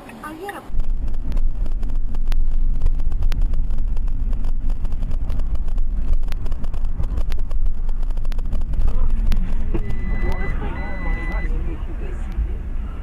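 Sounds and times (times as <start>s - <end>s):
moving car rumble: 0.0s - 13.0s.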